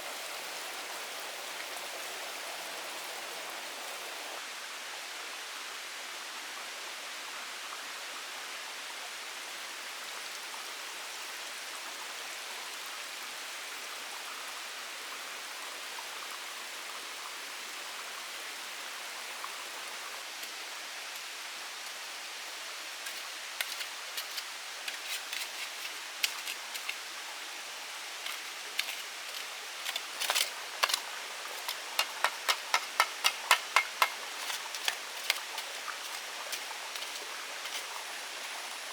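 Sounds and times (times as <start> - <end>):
rain hissing in forest: 0.0 - 38.9.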